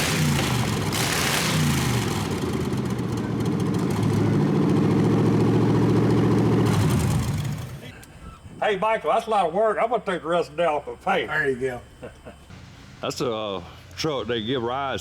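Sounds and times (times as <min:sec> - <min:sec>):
vehicle engine revving: 0:00.0 - 0:07.8.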